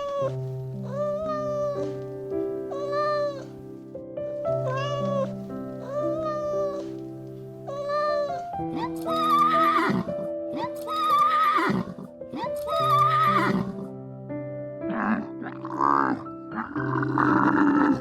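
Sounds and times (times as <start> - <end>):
soft background music: 0.0 - 18.0
horse neighing: 9.1 - 10.1, 10.9 - 12.0, 12.6 - 13.8, 14.9 - 18.0.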